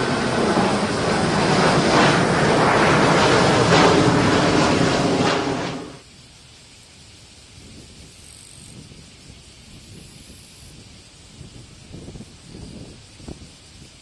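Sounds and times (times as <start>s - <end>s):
jet engines roaring: 0.0s - 6.0s.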